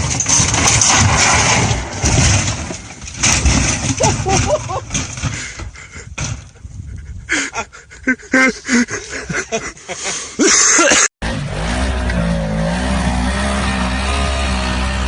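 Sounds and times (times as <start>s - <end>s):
knocks and clatter: 0.0s - 6.6s.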